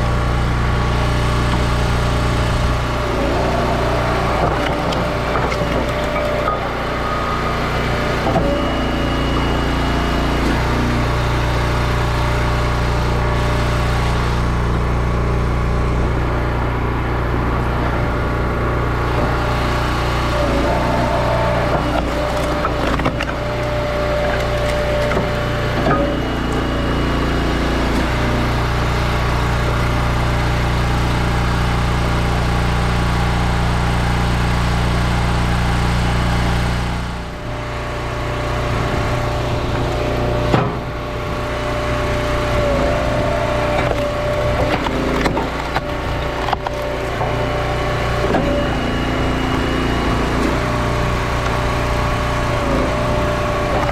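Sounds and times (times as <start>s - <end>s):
log splitter engine running: 0.0s - 53.9s
wood cracking and splintering: 0.9s - 9.0s, 18.9s - 26.7s, 39.1s - 48.9s.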